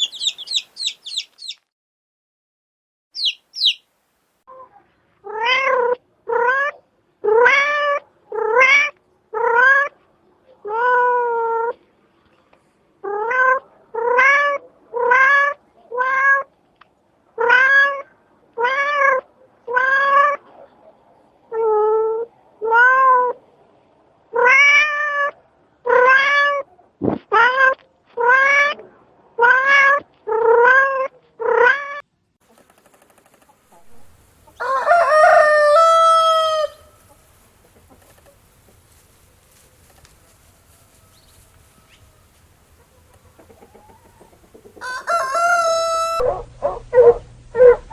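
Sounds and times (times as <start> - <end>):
cat meowing: 24.4 - 26.6.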